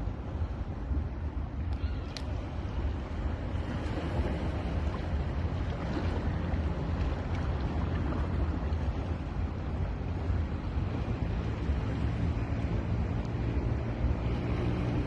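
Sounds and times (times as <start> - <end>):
sea surf washing onto beach: 1.7 - 15.0.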